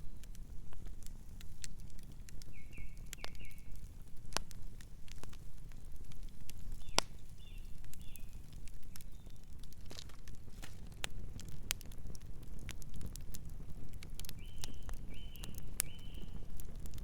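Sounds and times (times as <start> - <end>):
campfire crackling: 0.0 - 17.0
low fire rumble: 0.0 - 17.0
night bird chirping: 14.4 - 16.4.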